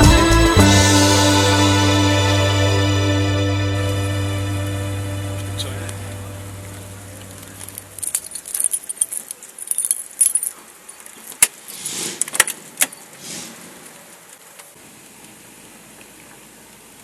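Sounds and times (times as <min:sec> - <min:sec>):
keys jangling: 0:07.7 - 0:11.0.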